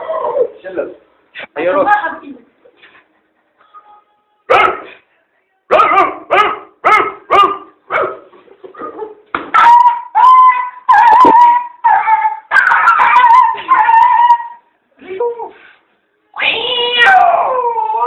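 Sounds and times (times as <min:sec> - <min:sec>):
person whining and howling: 0:16.4 - 0:18.0.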